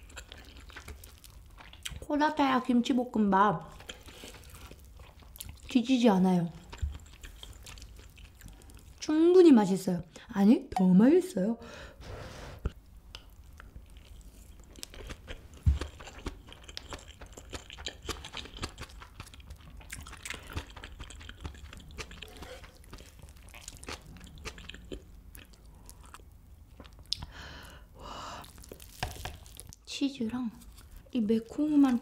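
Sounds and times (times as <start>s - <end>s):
chewing fried rice: 0.0s - 2.0s, 3.7s - 5.7s, 6.6s - 9.0s, 13.1s - 27.3s.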